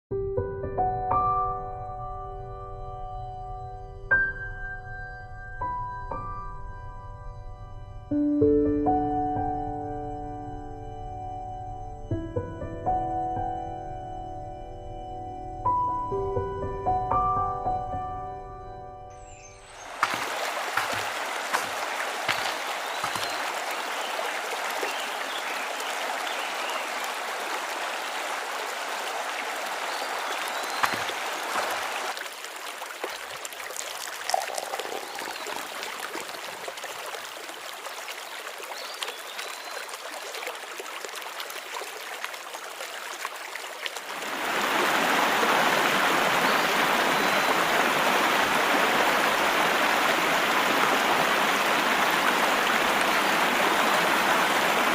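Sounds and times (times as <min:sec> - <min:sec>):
creek water flowing over stones: 0:19.2 - 0:54.9.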